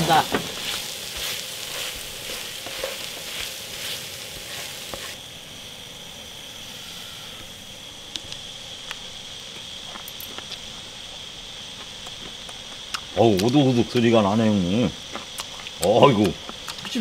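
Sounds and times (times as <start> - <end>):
wooden spatula scraping pan: 0.0 - 5.2
food sizzling in a frying pan: 0.0 - 17.0.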